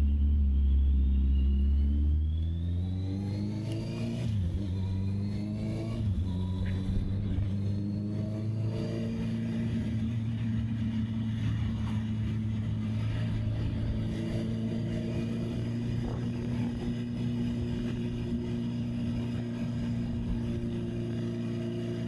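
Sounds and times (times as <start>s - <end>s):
motorcycle engine accelerating: 0.0s - 22.0s
wind noise on microphone: 15.1s - 20.7s.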